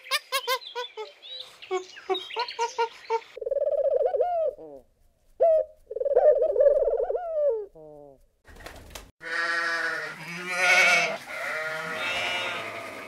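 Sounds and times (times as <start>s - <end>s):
pigeon cooing: 2.7s - 8.2s.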